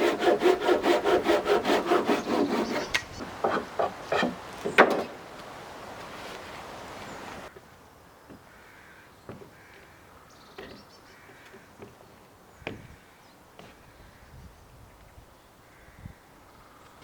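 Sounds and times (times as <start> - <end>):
rasping rub: 0.0 - 4.4
sharp knocks: 2.9 - 5.2.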